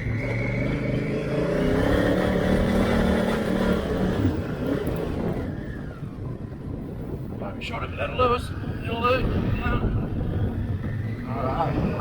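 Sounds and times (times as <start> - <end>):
motorcycle engine pulling hard: 0.0 - 6.0.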